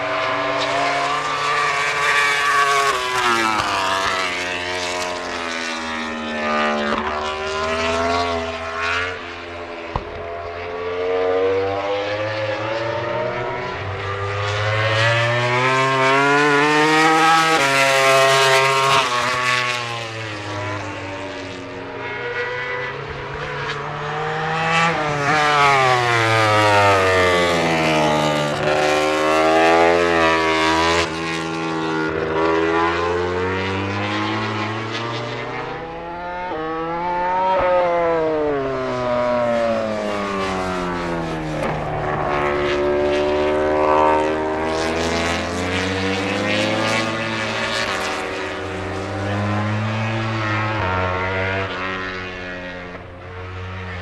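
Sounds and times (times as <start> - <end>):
racing motorcycle engines revving: 0.0 - 54.0.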